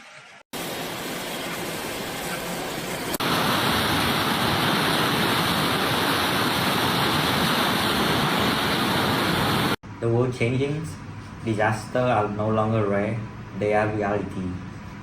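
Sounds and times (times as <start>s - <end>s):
rushing water: 0.5s - 9.8s.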